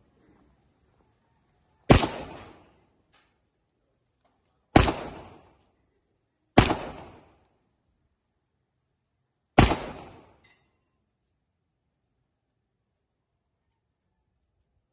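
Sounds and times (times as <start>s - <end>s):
pistol shots with echo: 1.9s - 2.8s, 4.7s - 5.6s, 6.5s - 7.4s, 9.6s - 10.4s.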